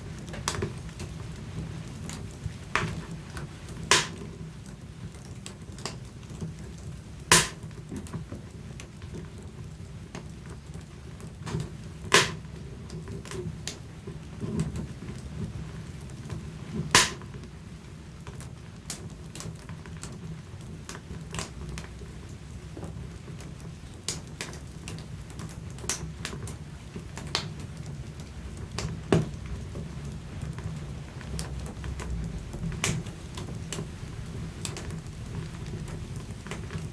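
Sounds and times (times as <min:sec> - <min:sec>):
wood fire crackling: 0:00.0 - 0:36.9
loud pops of fire: 0:00.1 - 0:09.4, 0:11.3 - 0:17.6, 0:18.2 - 0:36.9
low steady rumble: 0:08.4 - 0:36.9.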